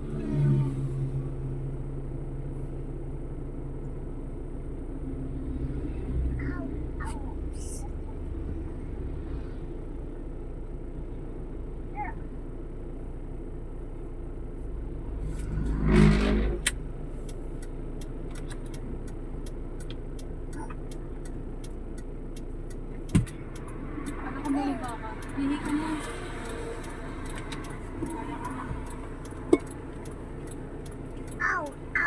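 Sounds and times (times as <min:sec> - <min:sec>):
vehicle passing: 0:00.0 - 0:01.4, 0:15.1 - 0:16.7, 0:23.2 - 0:32.0
road traffic rumble: 0:00.0 - 0:32.0
sharp evenly spaced clicks: 0:17.2 - 0:32.0.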